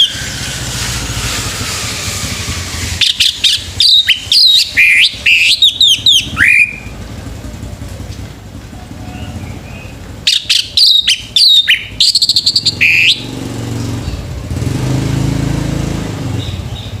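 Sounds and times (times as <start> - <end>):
thrush singing whistled notes: 0.0 - 7.1, 9.0 - 13.6.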